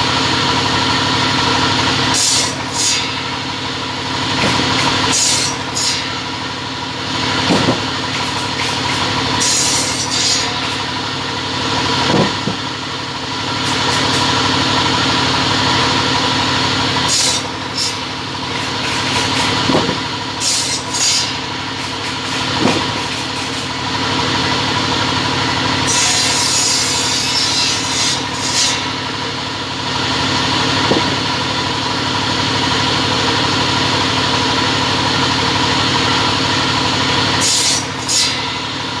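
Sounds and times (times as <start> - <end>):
cutting machine motor hum: 0.0 - 39.0
saw hissing: 2.1 - 3.4, 4.3 - 6.3, 7.2 - 11.0, 16.9 - 23.8, 25.8 - 29.0.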